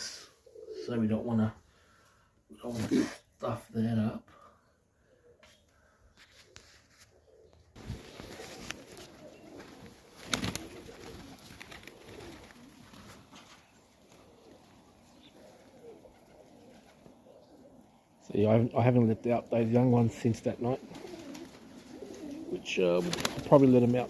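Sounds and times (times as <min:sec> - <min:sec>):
pigeons cooing: 0:00.0 - 0:03.4, 0:04.0 - 0:06.3, 0:07.0 - 0:24.0.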